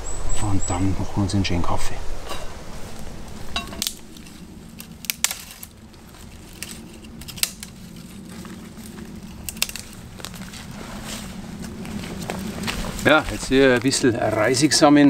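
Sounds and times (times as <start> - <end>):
clicks and clatter of brushwood: 3.6 - 14.1.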